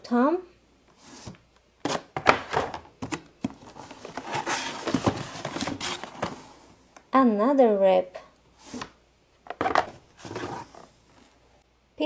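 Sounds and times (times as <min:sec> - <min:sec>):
packaging rustling: 0:03.0 - 0:06.6.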